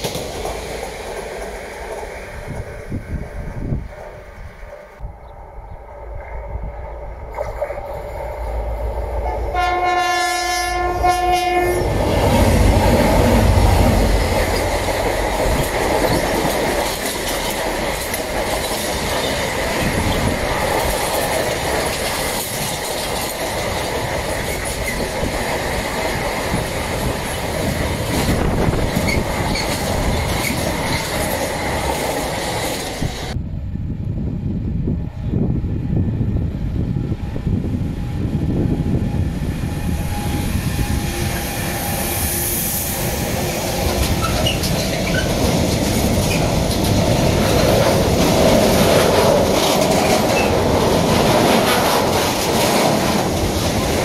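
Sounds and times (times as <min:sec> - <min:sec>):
freight train rumbling and rattling: 0:00.0 - 0:54.0
train horn blast: 0:09.2 - 0:12.3.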